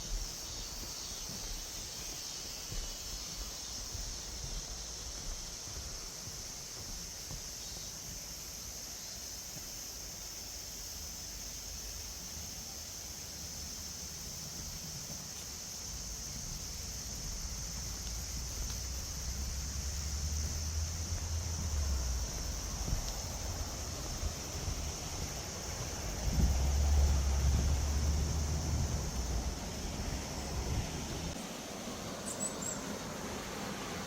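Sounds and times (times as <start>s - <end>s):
insects droning: 0.0s - 34.0s
wind rumbling on microphone: 15.9s - 31.4s.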